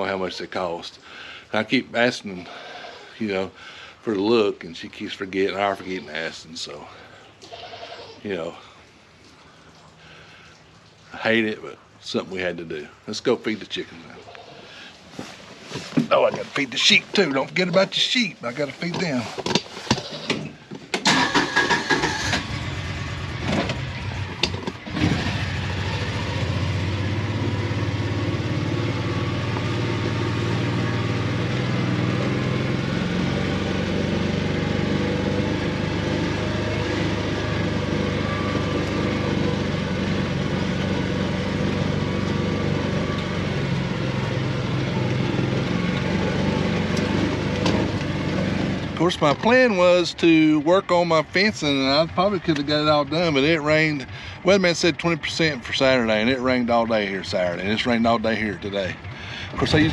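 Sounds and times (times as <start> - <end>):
vehicle engine starting and running: 15.8 - 20.0, 20.9 - 59.9.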